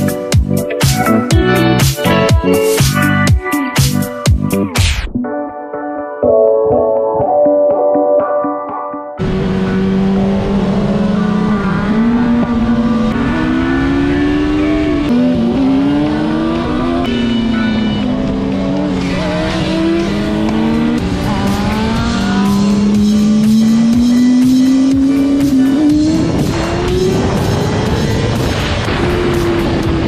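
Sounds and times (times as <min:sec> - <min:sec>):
motorcycle engine accelerating: 0:09.2 - 0:30.0
wind noise: 0:26.1 - 0:30.0.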